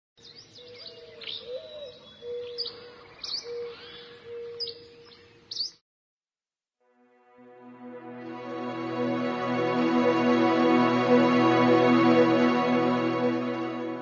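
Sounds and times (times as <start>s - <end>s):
birds chirping: 0.2s - 5.8s.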